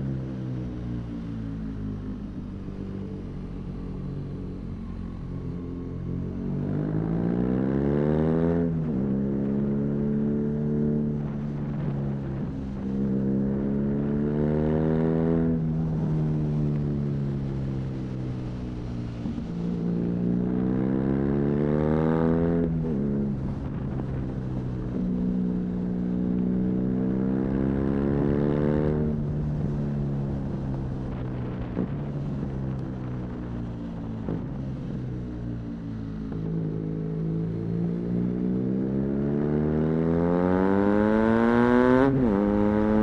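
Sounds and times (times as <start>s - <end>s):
motorcycle engine revving through gears: 17.4s - 33.0s, 34.2s - 43.0s.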